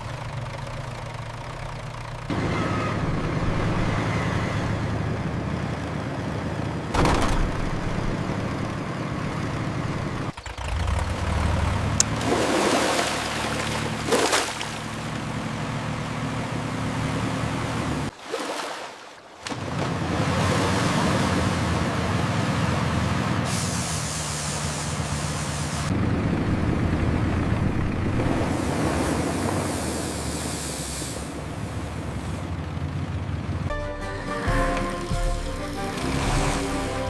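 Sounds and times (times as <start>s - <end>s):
heavy vehicle engine running: 0.0s - 18.1s, 19.6s - 37.0s
loud hissing bursts: 23.5s - 25.9s, 29.6s - 31.4s.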